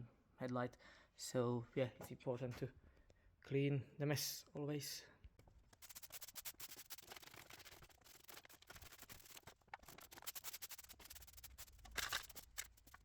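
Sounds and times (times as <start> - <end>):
scrape: 5.8 - 13.0
plastic debris rustling and clicking: 11.4 - 13.0.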